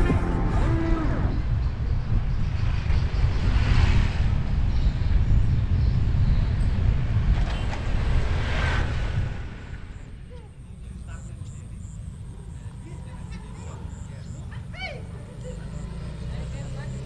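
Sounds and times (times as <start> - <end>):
wind rumbling on microphone: 0.0 - 12.0
traffic noise: 0.0 - 17.0.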